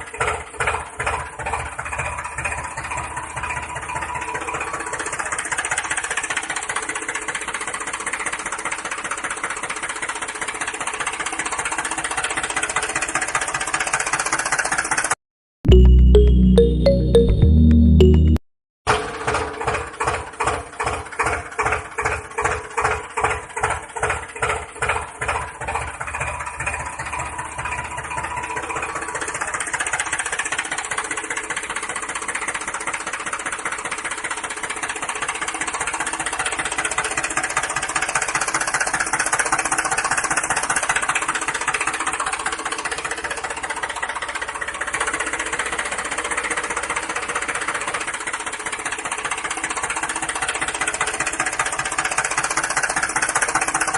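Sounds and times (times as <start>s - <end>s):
small engine running: 0.0s - 15.2s, 18.9s - 53.9s.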